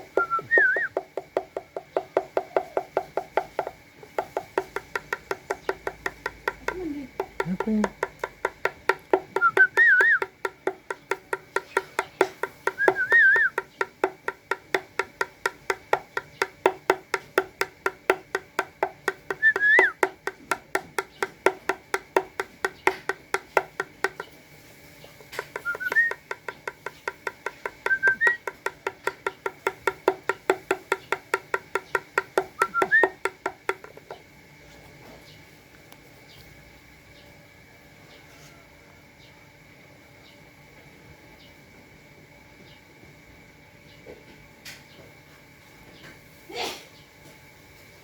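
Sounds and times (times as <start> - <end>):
dove pecking clicks: 0.0 - 24.4, 25.1 - 34.3.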